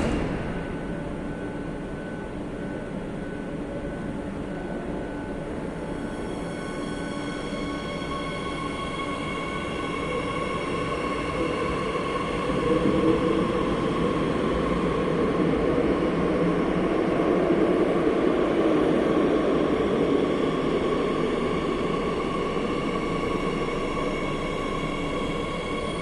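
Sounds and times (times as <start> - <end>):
train wheels rumbling on rails: 0.0 - 2.7
high-pitched train whine: 0.0 - 26.0.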